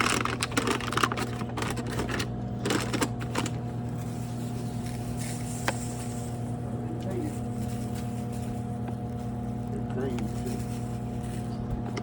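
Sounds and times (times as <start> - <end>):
clicks and rattles: 0.0 - 3.6
steady machine hum: 0.0 - 12.0.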